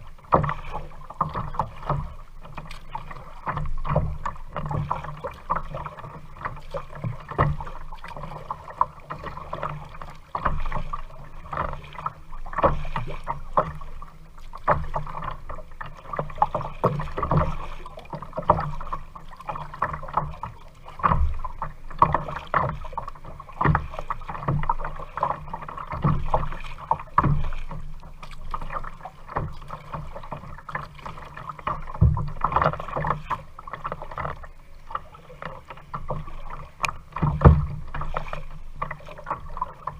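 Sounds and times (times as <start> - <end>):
paddle strokes in water: 0.0 - 39.9
knocks against kayak hull: 31.7 - 33.2, 36.1 - 39.6.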